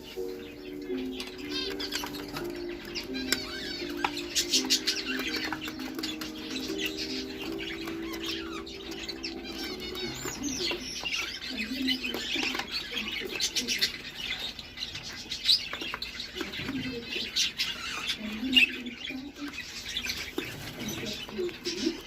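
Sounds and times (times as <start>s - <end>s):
young budgerigars chirping: 0.0s - 22.0s.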